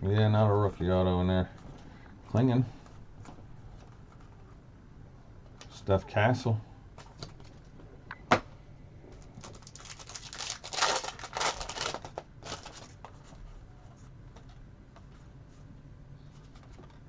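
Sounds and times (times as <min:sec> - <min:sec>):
cards rustling: 0:09.2 - 0:15.7
card pack wrapper crinkling: 0:09.3 - 0:13.2.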